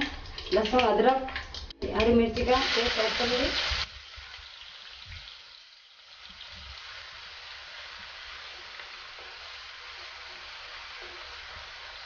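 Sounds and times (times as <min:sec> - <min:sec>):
paste sizzling in hot oil: 0:02.4 - 0:12.0.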